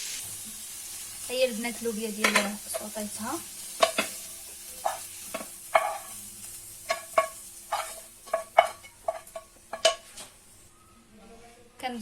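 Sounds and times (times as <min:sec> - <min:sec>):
beans sizzling in a pan: 0:00.0 - 0:10.8.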